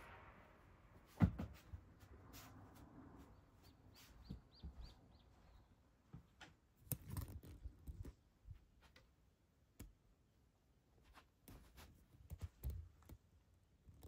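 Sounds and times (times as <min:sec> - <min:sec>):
soft knocks and bumps: 0:01.2 - 0:01.8
small bird chirping: 0:03.2 - 0:05.8.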